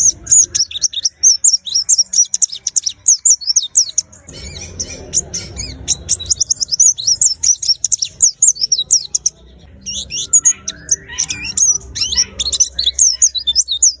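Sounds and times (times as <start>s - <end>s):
bird singing high chirps: 0.0s - 14.0s.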